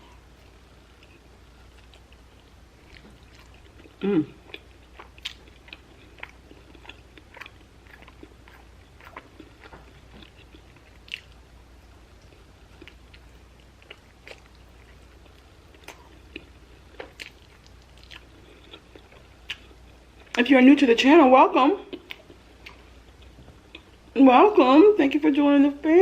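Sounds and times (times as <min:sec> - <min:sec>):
chewing and biting: 0:00.4 - 0:20.4.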